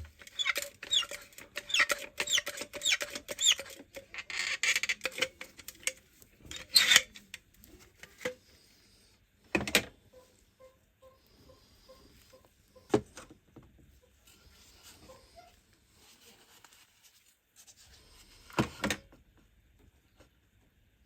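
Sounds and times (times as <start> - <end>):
squeaky sealant squelches: 0.2 - 4.8.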